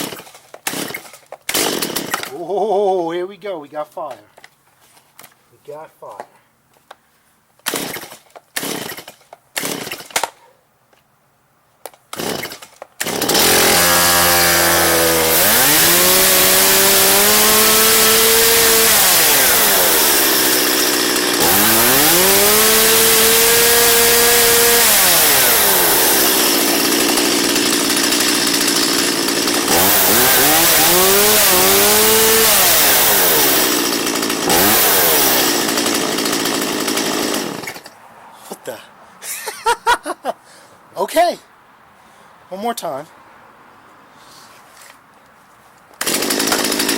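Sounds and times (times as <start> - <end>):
chainsaw idling and revving: 0.0 - 2.4, 7.7 - 10.3, 12.1 - 37.9, 46.0 - 46.9.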